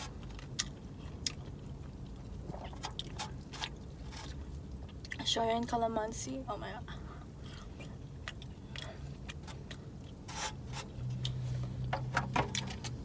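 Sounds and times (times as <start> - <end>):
person chewing food: 0.0 - 5.2, 7.4 - 11.9
low steady hum: 0.0 - 13.0.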